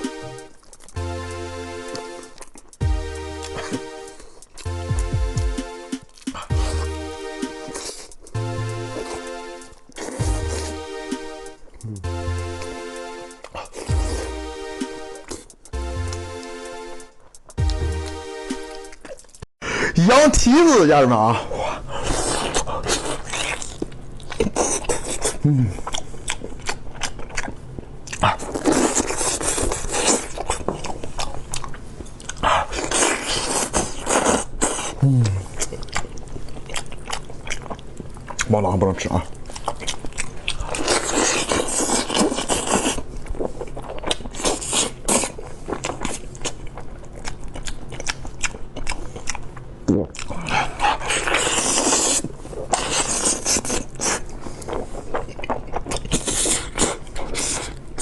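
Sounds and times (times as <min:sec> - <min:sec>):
chewing and biting: 0:00.0 - 0:01.0, 0:01.9 - 0:05.1, 0:07.6 - 0:10.8, 0:11.6 - 0:16.2, 0:17.2 - 0:19.5, 0:22.0 - 0:58.0
person vocal sound: 0:11.8 - 0:12.2, 0:25.4 - 0:25.8, 0:35.0 - 0:35.6.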